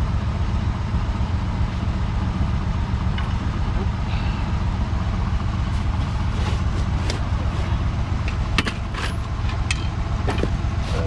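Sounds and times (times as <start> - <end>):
pickup engine idling: 0.0 - 11.0
sharp metallic clicks and knocks: 8.2 - 10.6.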